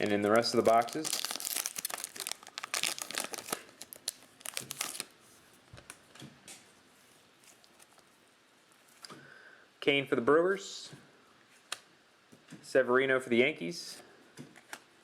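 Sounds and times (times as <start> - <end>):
cellophane wrapper crinkling: 0.0 - 5.2, 7.4 - 8.1.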